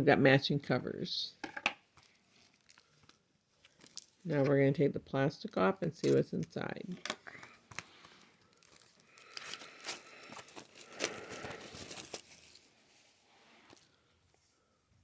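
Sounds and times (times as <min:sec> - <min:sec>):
plastic wrap tearing and crinkling: 0:02.0 - 0:04.2, 0:07.7 - 0:12.8.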